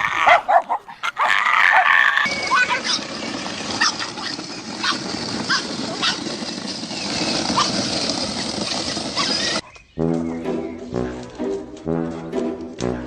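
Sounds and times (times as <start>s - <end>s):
dog yelping: 0.0s - 3.1s, 3.7s - 6.3s, 7.4s - 7.9s, 8.7s - 9.8s.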